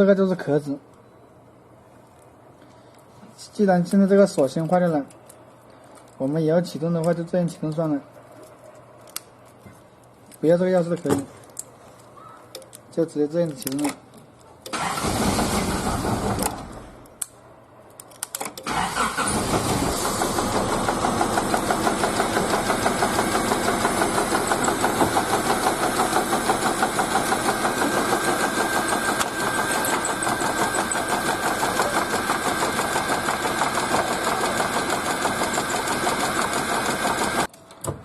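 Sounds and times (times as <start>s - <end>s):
car engine cranking: 14.7s - 16.9s, 18.6s - 37.5s
car engine idling: 19.0s - 28.3s.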